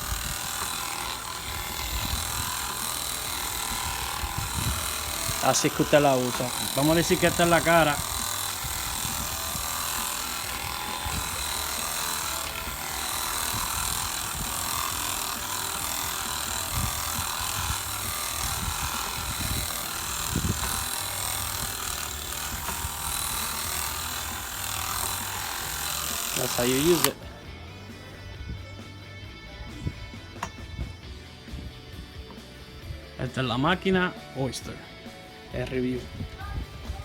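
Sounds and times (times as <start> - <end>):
electric massager buzzing: 0.0 - 27.6.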